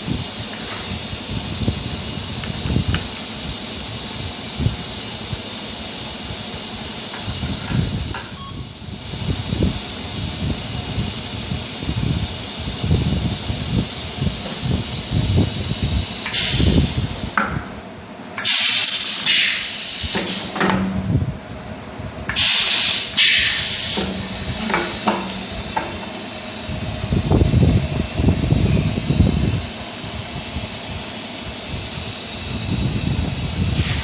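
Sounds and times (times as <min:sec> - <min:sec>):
low machine rumble: 0:00.0 - 0:18.4, 0:19.6 - 0:34.0
compressed air hissing: 0:16.2 - 0:17.3, 0:18.4 - 0:20.6, 0:22.3 - 0:26.2, 0:33.5 - 0:34.0.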